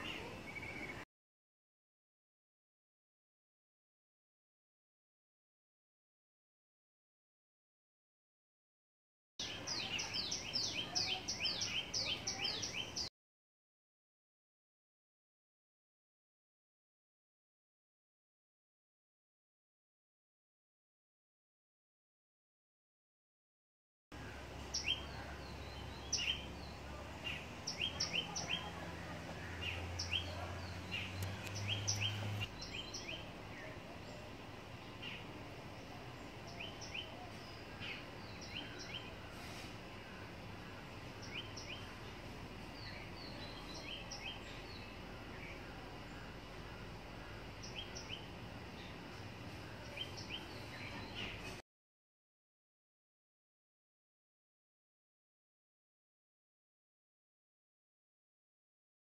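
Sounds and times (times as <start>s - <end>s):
outdoor background hiss: 0.0s - 1.0s, 9.4s - 13.1s, 24.2s - 51.6s
small birds chirping: 0.0s - 1.0s, 9.4s - 13.1s, 24.2s - 51.6s.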